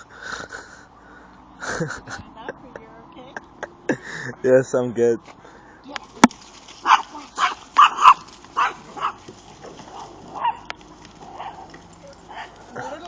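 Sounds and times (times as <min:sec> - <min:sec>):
dog yipping: 0:06.8 - 0:10.7, 0:11.3 - 0:11.7.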